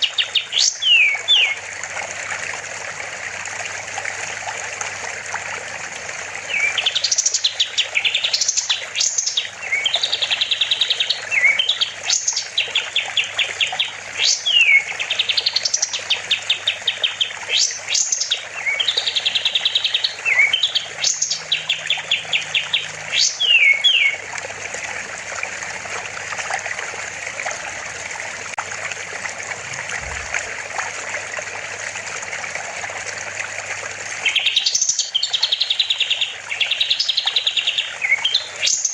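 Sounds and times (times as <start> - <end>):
songbird singing whistles and trills: 0.0 - 1.6, 6.5 - 24.2, 34.3 - 38.9
rushing water: 0.0 - 38.9.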